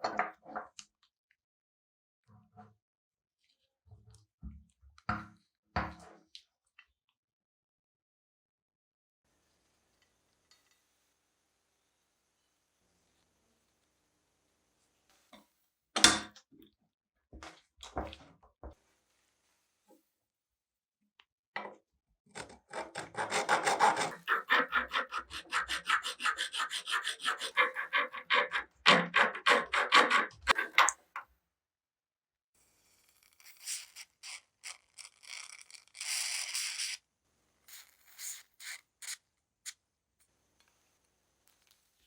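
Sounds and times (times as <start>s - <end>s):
hand abrading rusty metal: 24.0s - 30.9s.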